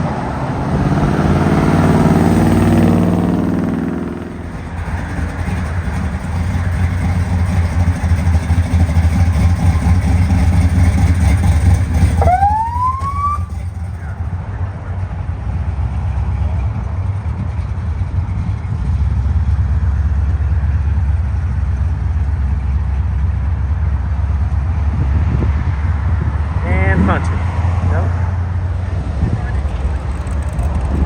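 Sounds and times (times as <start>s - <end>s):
vehicle engine rumble: 0.0s - 31.0s
siren whoop: 12.2s - 13.6s.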